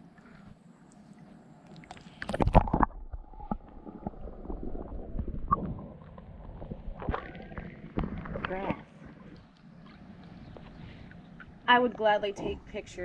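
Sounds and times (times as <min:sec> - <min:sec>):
water sloshing and gurgling: 0:00.0 - 0:12.8
water splashing: 0:01.7 - 0:11.5.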